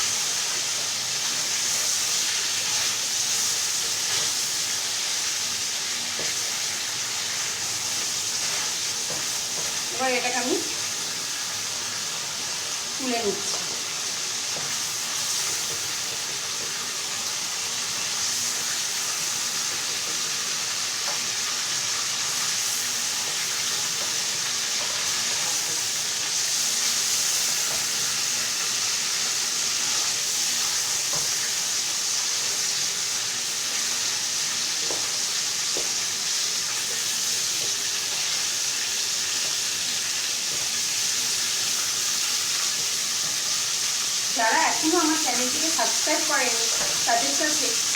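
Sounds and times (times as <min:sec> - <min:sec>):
chicken sizzling in hot oil: 0:00.0 - 0:47.9.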